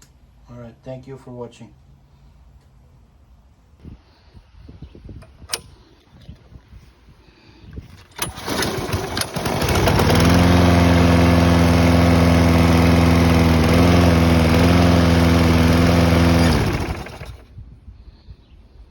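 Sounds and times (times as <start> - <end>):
lawn mower engine running: 7.9 - 17.5.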